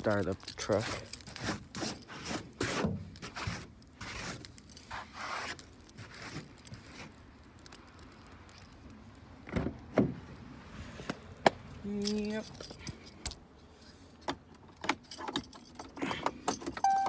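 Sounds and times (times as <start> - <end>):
scraping and rustling: 0.0 - 8.9.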